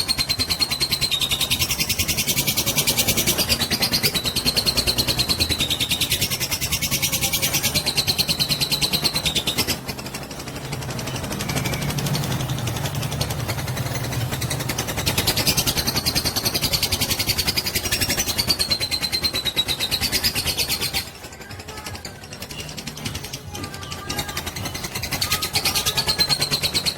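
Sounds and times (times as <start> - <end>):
lovebird chattering trill: 23.7 - 26.9.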